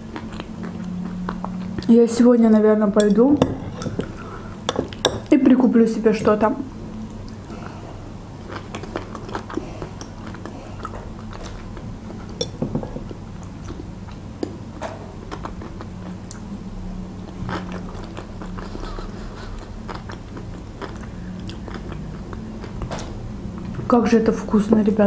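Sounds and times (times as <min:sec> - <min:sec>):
close-up chewing: 0:00.0 - 0:02.0, 0:07.2 - 0:12.5, 0:17.2 - 0:22.8.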